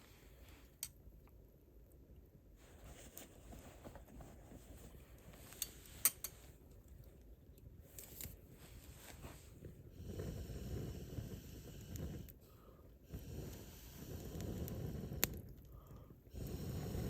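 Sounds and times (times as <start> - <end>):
campfire burning with low rush: 4.7 - 17.0
fire crackles and pops: 5.4 - 12.5, 13.1 - 17.0.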